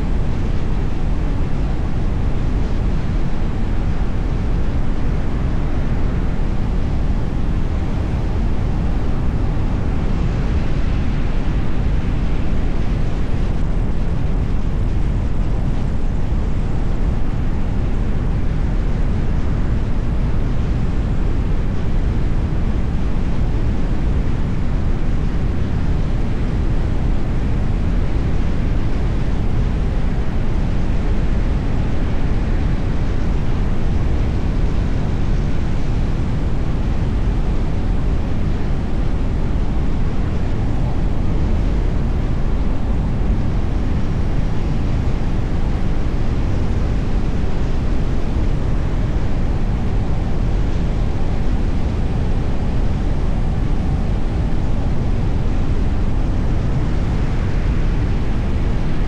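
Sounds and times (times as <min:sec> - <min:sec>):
car road and wind noise: 0:00.0 - 0:59.0.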